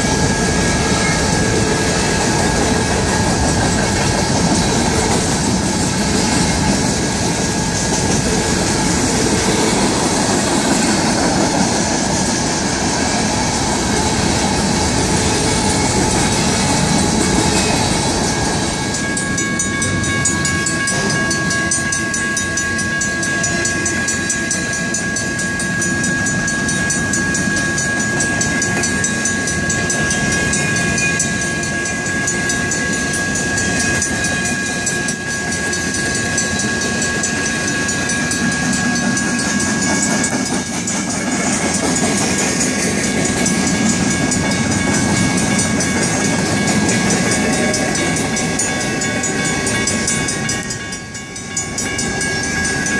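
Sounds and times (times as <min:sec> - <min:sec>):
train wheels clacking over rails: 0:00.0 - 0:52.9
electronic crossing bell ringing: 0:13.8 - 0:52.9
mechanical crossing bell ringing: 0:14.2 - 0:52.9.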